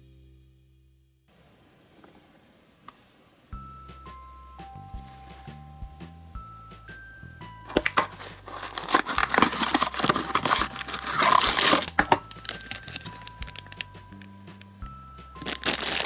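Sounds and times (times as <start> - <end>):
plastic packaging crinkling: 7.8 - 13.8.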